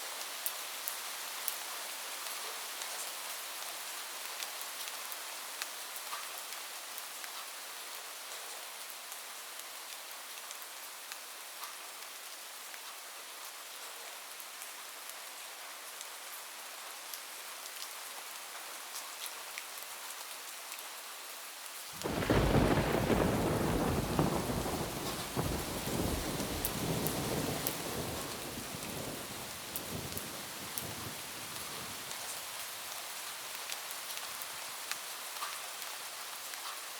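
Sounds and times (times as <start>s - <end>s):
rain pattering on a roof: 0.0s - 36.9s
thunderclap rumbling: 22.0s - 32.0s.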